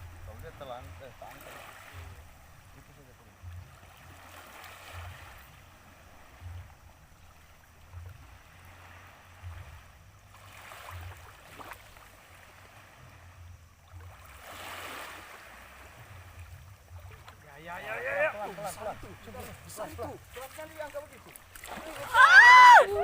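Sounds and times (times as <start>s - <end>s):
soft low rumble: 0.0s - 14.5s, 15.2s - 17.5s
rushing water swells: 0.0s - 23.0s
water lapping at shore: 0.0s - 23.0s.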